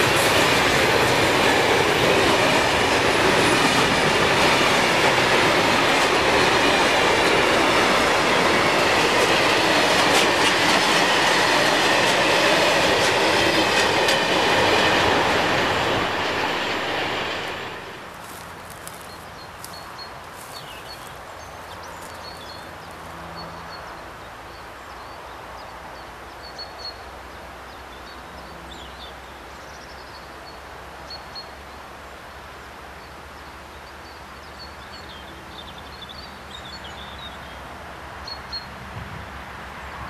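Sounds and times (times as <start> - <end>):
small birds chirping: 18.1 - 27.0.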